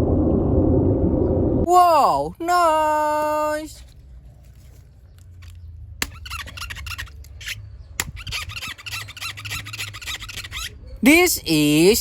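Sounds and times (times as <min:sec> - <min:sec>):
plastic squeaking when rubbed: 0:04.4 - 0:11.0.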